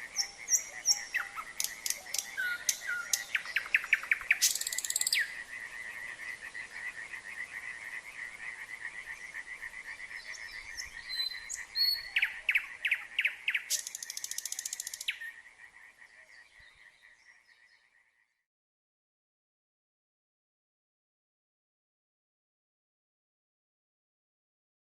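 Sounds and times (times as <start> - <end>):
frogs calling in chorus: 0.0 - 16.3
nightingale singing: 0.0 - 18.4.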